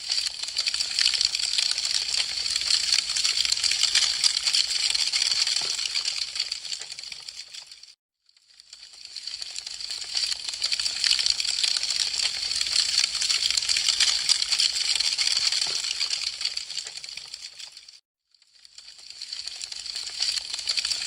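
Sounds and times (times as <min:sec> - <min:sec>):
wood fire crackling: 0:00.1 - 0:07.7, 0:08.9 - 0:17.7.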